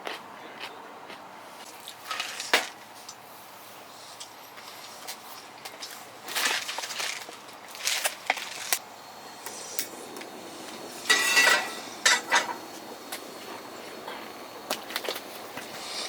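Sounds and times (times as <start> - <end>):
metal cookware clinking: 11.0 - 12.7
metallic ring: 11.1 - 12.6.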